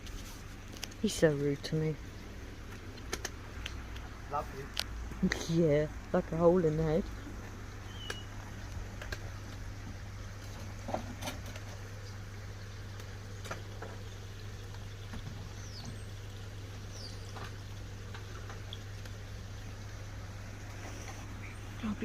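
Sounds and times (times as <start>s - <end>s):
small bird chirps: 7.8s - 8.3s, 16.9s - 17.4s.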